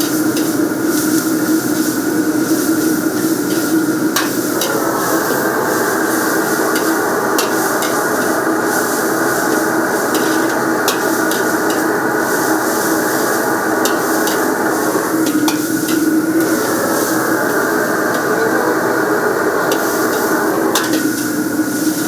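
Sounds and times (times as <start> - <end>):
kitchen rushing roar with low hum: 0.0 - 22.0
utensils clinking: 3.1 - 21.5.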